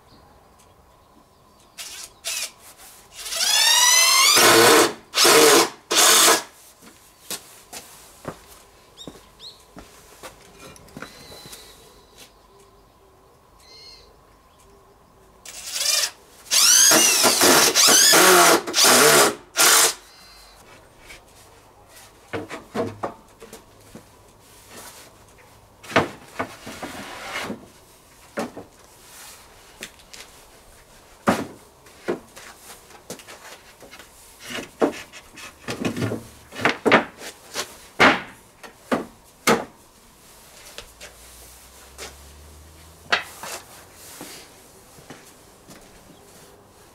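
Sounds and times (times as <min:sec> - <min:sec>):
power drill running: 0:03.2 - 0:06.5, 0:15.5 - 0:20.0.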